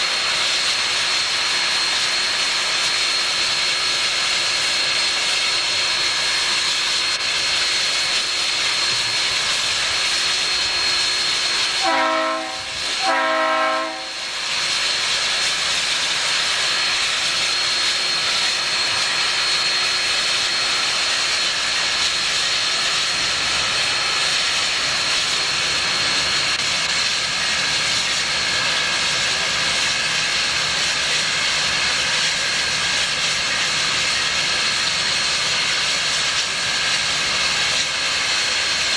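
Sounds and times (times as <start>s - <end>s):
steam hissing: 0.0s - 38.9s
locomotive chime whistle blasts: 11.8s - 14.3s.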